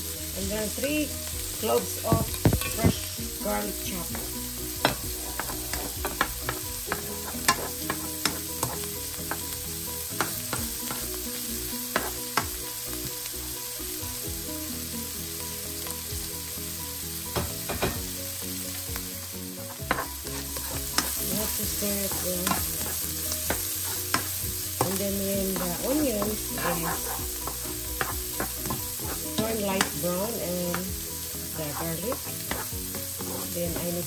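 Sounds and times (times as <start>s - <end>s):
onion and garlic sizzling in oil: 0.0s - 34.0s
plastic spoon scraping a pan: 4.8s - 8.9s, 19.6s - 30.0s, 31.6s - 34.0s.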